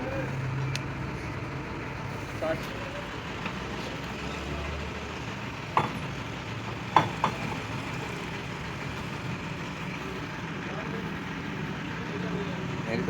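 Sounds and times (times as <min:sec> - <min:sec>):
sharp knocks: 0:06.9 - 0:07.5.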